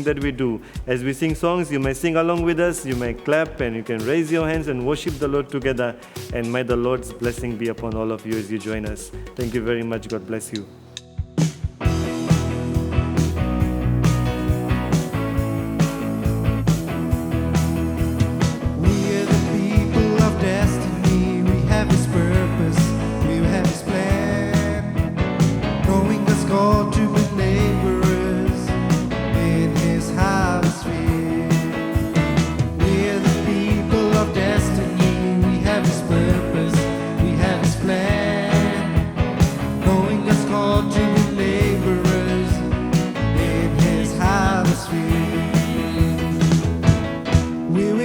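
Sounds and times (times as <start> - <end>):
drum beat: 0.0 - 10.0, 11.2 - 47.7
worship band music: 0.0 - 48.0
person singing: 18.8 - 32.2, 32.8 - 46.7, 47.7 - 48.0.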